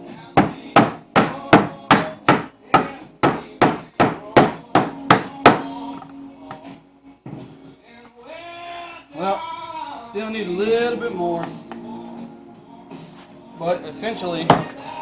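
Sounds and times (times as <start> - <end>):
hammer striking wood: 0.4 - 5.8, 14.5 - 14.8.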